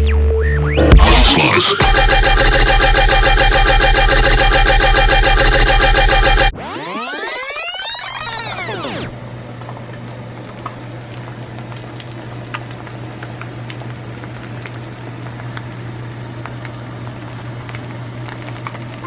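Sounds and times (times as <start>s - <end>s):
low hum: 0.8s - 9.4s
sharp ticks: 1.8s - 8.8s
crackling sizzling hiss: 9.6s - 19.0s.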